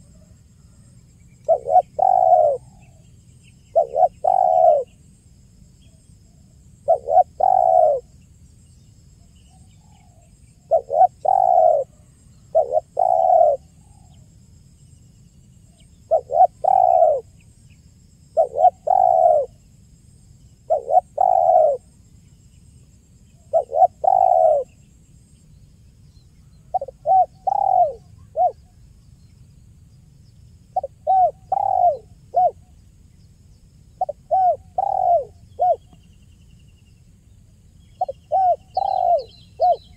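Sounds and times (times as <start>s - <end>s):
dove cooing: 1.4s - 3.0s, 3.7s - 5.0s, 6.8s - 8.1s, 9.8s - 14.2s, 16.1s - 17.4s, 18.4s - 19.6s, 20.7s - 21.9s, 23.5s - 24.8s, 26.6s - 28.8s, 30.7s - 32.6s, 34.0s - 36.0s, 38.0s - 39.9s.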